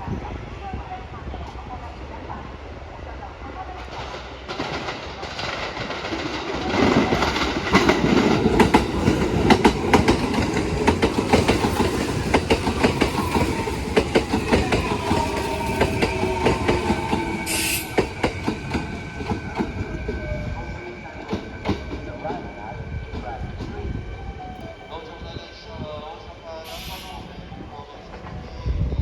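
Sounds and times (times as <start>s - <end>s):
wheels clacking over rail joints: 3.8s - 19.8s
air hiss: 17.4s - 18.0s, 26.7s - 27.4s.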